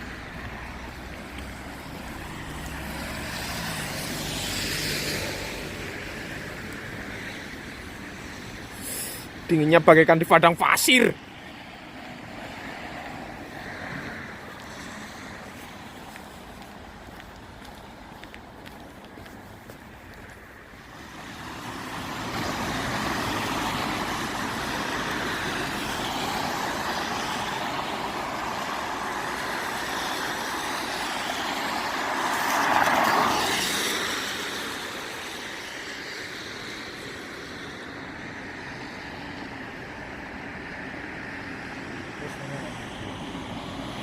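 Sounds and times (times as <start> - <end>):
road vehicle passing: 0.0 - 44.0.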